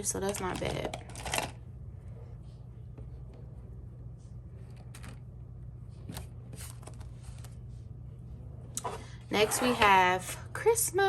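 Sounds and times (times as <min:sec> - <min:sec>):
steady low hum: 0:00.0 - 0:11.0
paper rustling: 0:06.1 - 0:07.6.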